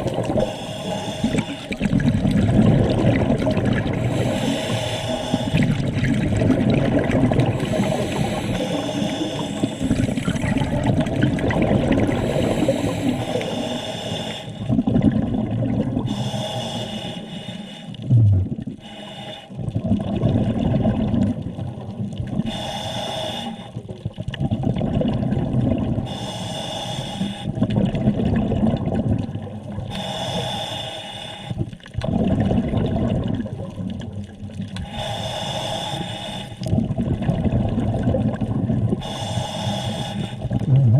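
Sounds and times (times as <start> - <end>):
exhaled bubbles rumbling: 0.0 - 16.4, 18.0 - 18.9, 19.5 - 22.7, 23.6 - 26.2, 27.5 - 30.0, 31.5 - 35.8, 36.6 - 40.9
regulator inhaling hiss: 0.4 - 1.8, 4.0 - 5.6, 7.6 - 10.2, 12.1 - 14.7, 16.1 - 18.0, 18.8 - 19.6, 22.5 - 23.8, 26.1 - 27.5, 29.9 - 31.6, 34.8 - 36.7, 39.0 - 40.5
low hum: 18.1 - 18.7, 40.6 - 40.9.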